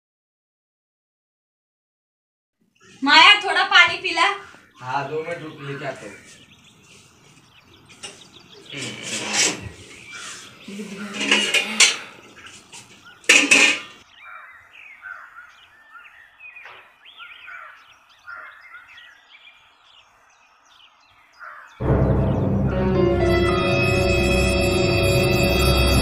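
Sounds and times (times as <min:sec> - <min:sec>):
faint bird chirps: 0:04.3 - 0:21.8.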